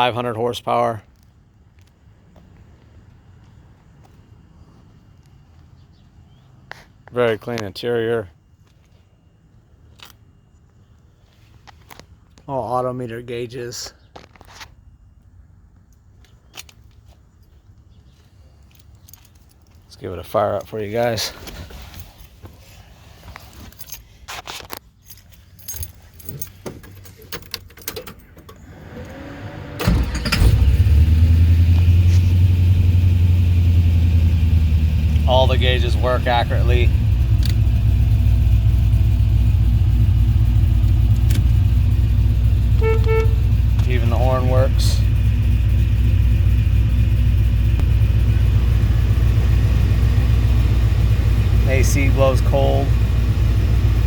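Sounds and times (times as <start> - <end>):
keys jangling: 18.6 - 19.9, 23.5 - 24.3, 24.9 - 28.5
car engine starting and idling: 26.5 - 54.0.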